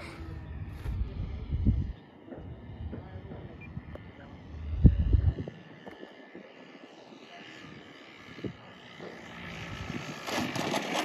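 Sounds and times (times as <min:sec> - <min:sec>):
model plane motor whining: 0:03.7 - 0:11.0.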